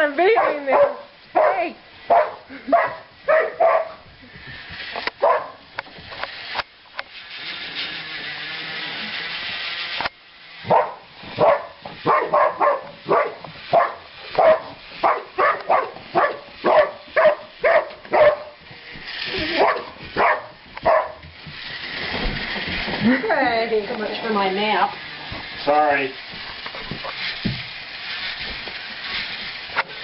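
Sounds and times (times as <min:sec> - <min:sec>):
steady hissing whir: 0:00.0 - 0:30.0
dog barking: 0:00.4 - 0:04.0, 0:05.2 - 0:05.6, 0:10.7 - 0:18.6, 0:19.6 - 0:21.2.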